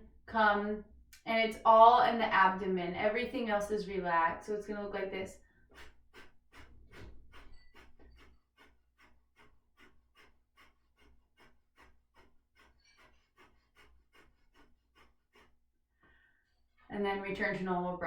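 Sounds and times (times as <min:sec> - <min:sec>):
forceful nasal exhalations: 0:05.4 - 0:16.4.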